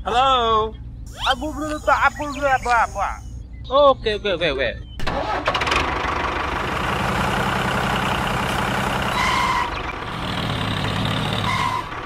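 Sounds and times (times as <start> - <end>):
short high-pitched beeps: 1.1 - 3.8
tractor engine running: 5.0 - 12.0.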